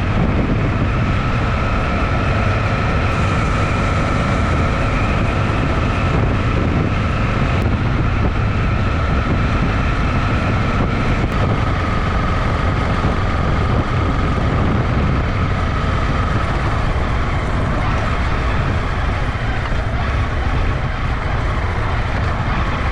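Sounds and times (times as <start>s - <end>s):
faint steady whine: 0.0s - 22.9s
motorcycle engine running: 0.0s - 22.9s
wind rumble on microphone: 0.0s - 22.9s.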